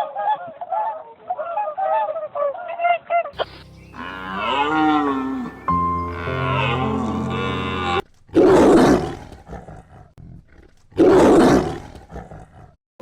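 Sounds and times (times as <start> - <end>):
sustained pitched tone: 3.4 - 8.0
loud animal roars: 3.9 - 12.8.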